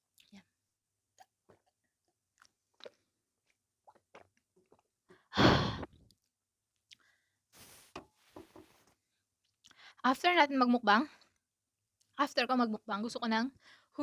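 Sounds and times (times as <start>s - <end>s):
wet chewing clicks: 2.3s - 4.9s.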